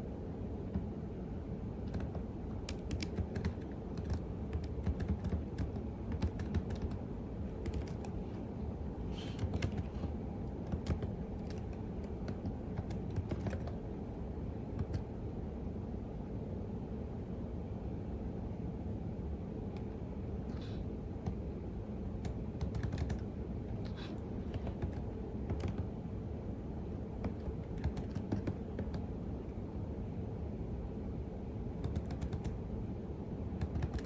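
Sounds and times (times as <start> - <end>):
steady low hum: 0.0 - 34.0
keyboard key clicks: 1.9 - 7.0, 7.7 - 8.2, 9.4 - 9.9, 10.6 - 13.8, 27.2 - 29.0, 31.8 - 32.6, 33.6 - 34.0.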